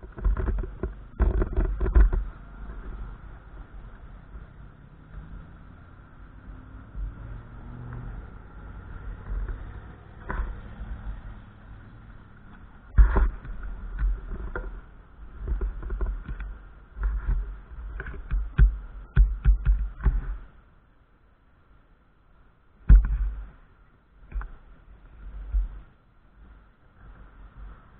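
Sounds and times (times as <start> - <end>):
sharp thumps of gusts: 6.5 - 20.6, 22.8 - 24.6.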